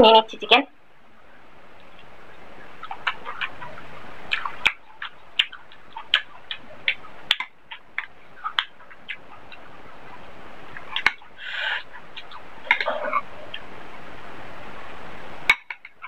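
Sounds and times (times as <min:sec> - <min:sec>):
wet chewing and lip-smacking: 0:02.8 - 0:13.7.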